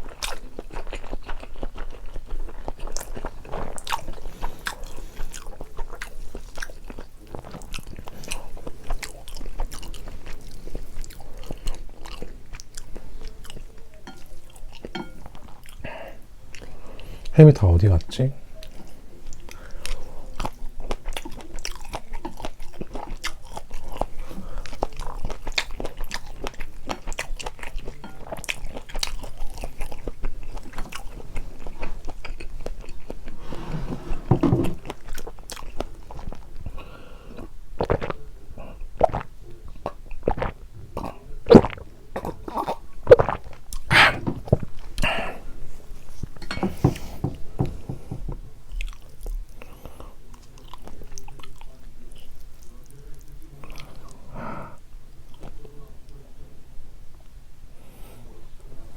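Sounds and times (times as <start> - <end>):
chewing mouth sounds: 0.0 - 15.8, 18.6 - 33.4, 34.8 - 45.2.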